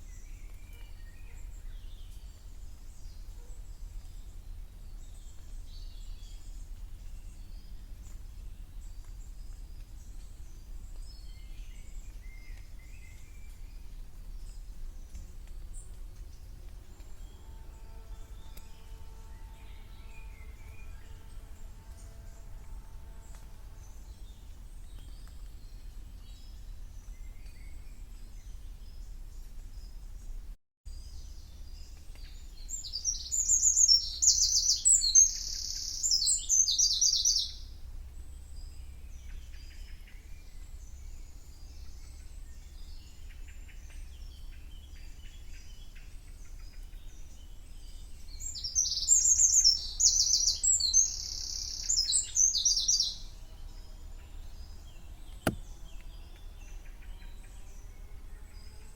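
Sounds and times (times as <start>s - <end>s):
songbird trilling: 32.8s - 37.6s, 48.5s - 53.2s.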